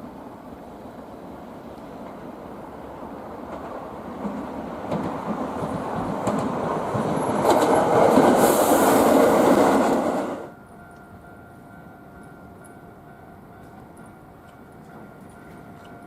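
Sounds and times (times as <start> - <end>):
train wheel clicks on rail joints: 3.5 - 8.4, 13.6 - 16.0.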